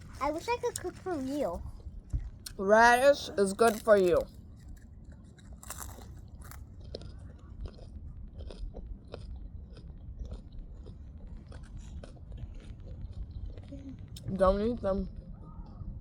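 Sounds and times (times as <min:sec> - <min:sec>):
person chewing crunchy radish: 0:03.5 - 0:14.3.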